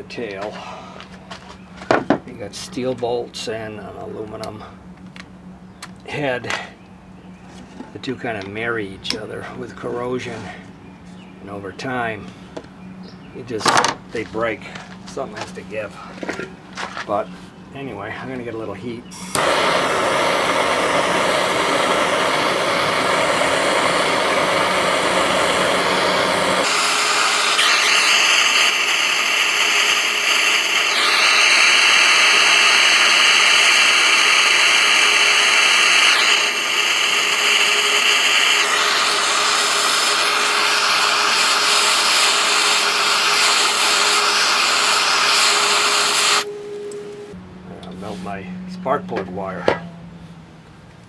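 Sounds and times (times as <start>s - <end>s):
heat gun blowing: 19.1s - 47.1s.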